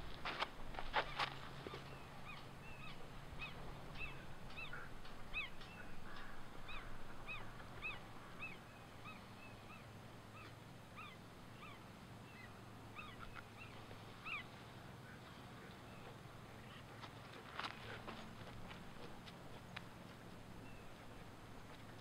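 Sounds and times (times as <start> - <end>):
birds calling: 0.8 - 22.0.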